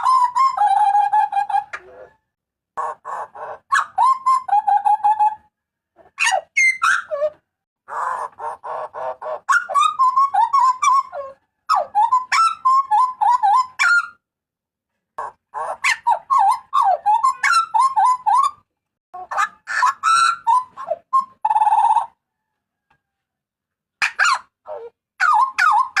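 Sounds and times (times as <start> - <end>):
bird giving harsh calls: 7.9 - 11.2.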